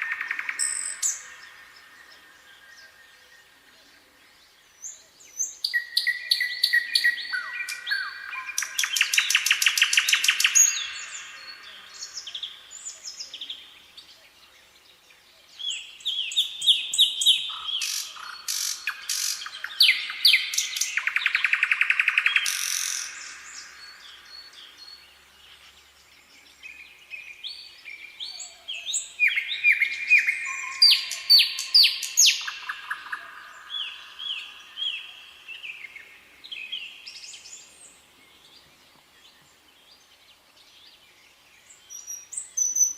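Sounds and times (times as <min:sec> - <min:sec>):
songbirds singing: 0:00.0 - 0:42.9.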